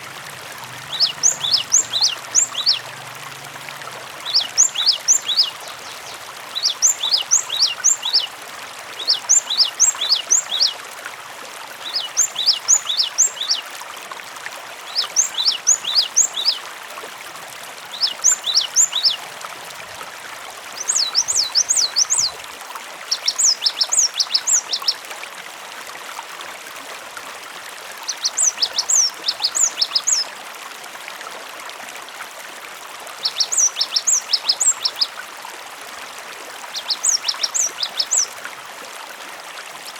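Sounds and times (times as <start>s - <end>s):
running water: 0.0s - 39.9s
bird chirping: 0.7s - 2.9s, 4.2s - 8.3s, 11.9s - 13.6s.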